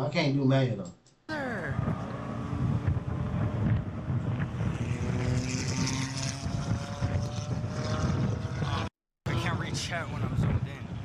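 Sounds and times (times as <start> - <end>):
sports car engine accelerating: 1.3 - 9.6.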